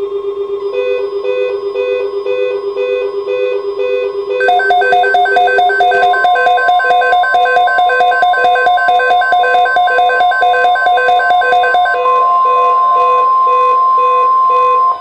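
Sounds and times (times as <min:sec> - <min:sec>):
rapid electronic alert beeps: 0:04.4 - 0:12.6
steady electronic tone: 0:04.4 - 0:14.5.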